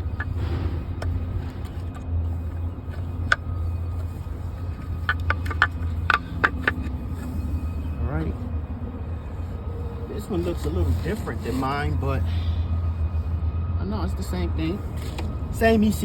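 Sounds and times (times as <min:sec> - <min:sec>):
low rumble: 0:00.0 - 0:11.0
engine parts clicking and clinking: 0:00.0 - 0:12.7, 0:14.8 - 0:16.0.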